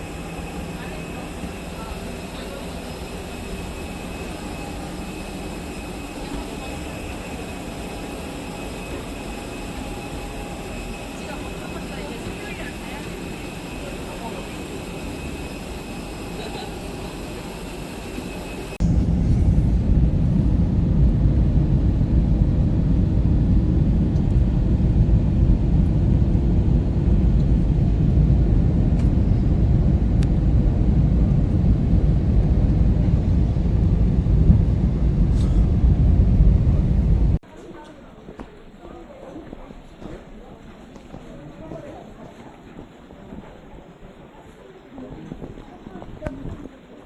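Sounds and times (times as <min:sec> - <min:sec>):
airliner cabin hum: 0:00.0 - 0:37.4
jet engine rumble: 0:00.0 - 0:37.4.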